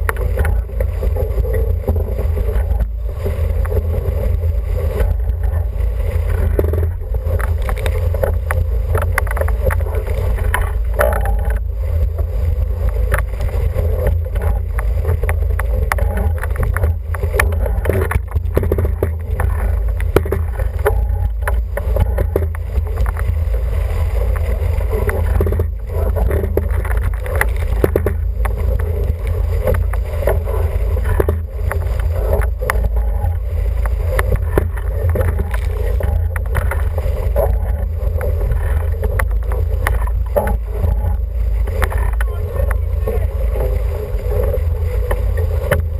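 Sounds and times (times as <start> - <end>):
water along hull: 0.0 - 45.9
wind buffeting microphone: 0.0 - 45.9
small knocks and clicks: 6.3 - 11.6, 12.8 - 23.3, 24.3 - 42.8.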